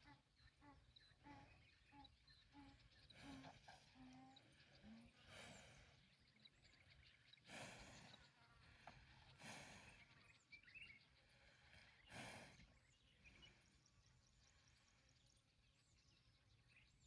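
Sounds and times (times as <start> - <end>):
cow breathing out: 7.5 - 10.4.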